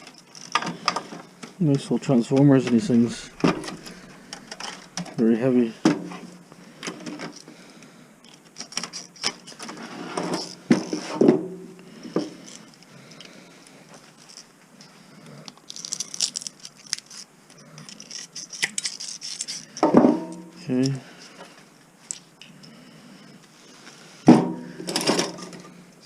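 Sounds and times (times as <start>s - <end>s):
metal parts clinking and scraping: 2.3s - 5.2s, 15.6s - 20.5s.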